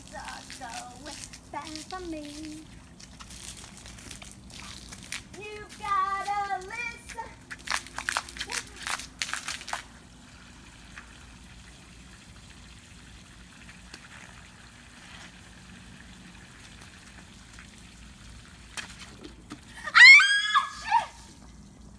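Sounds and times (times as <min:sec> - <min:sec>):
faint steady hum: 0:00.0 - 0:21.9
high-pitched cry: 0:19.8 - 0:21.3.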